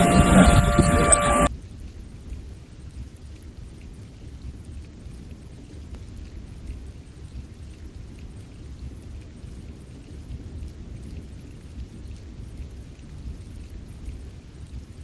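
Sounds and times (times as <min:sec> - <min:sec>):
steady low rumbling: 0:00.0 - 0:01.5.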